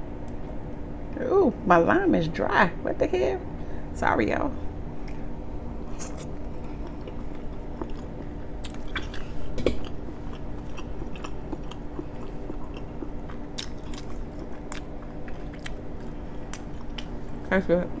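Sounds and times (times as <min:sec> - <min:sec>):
steady low hum: 0:00.0 - 0:18.0
wet chewing and mouth smacks: 0:05.9 - 0:17.2.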